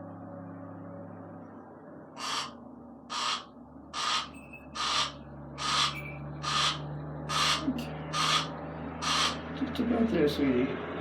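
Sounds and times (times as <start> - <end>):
barn owl hissing: 2.2 - 9.5.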